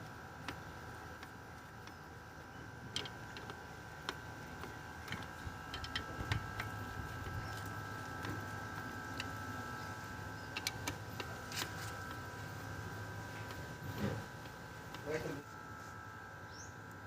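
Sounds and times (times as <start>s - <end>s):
faint steady hum: 0.0s - 17.0s
clicks and taps of small parts: 2.9s - 6.7s.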